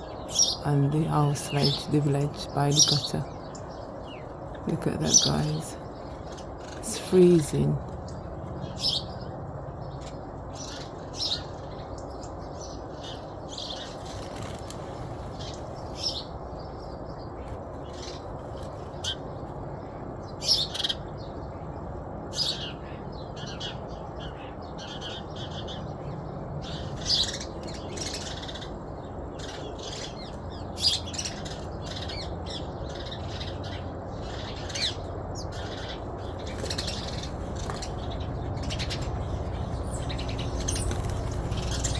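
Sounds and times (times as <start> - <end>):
birds chirping: 0.0 - 41.9
low background rumble: 21.0 - 41.9.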